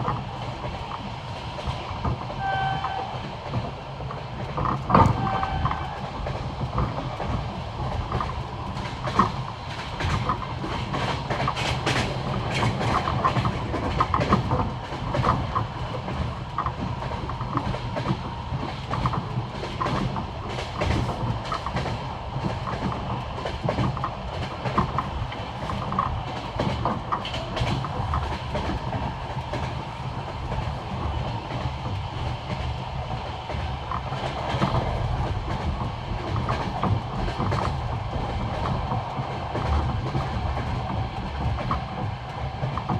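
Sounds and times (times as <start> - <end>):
train low rumble: 0.0 - 42.9
train wheels clickety-clack: 0.0 - 42.9.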